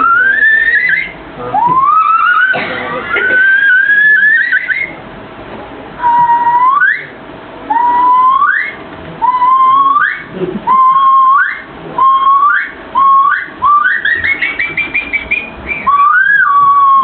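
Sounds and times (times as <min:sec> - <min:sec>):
person whistling bird call: 0:07.8 - 0:17.0.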